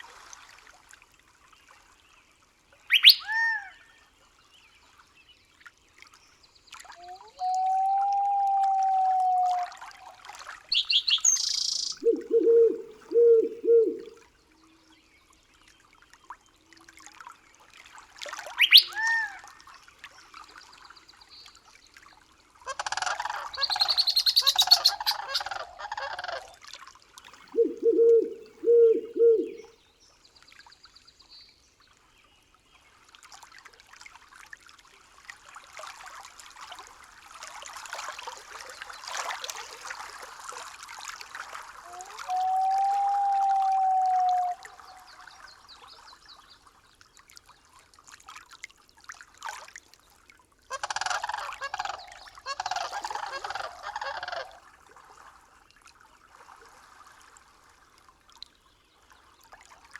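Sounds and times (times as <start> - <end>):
forest birds calling: 2.9 - 3.8, 10.7 - 14.2, 18.6 - 19.3, 23.0 - 26.5, 27.3 - 29.7, 50.8 - 54.6
running water: 6.6 - 14.2, 22.5 - 29.6.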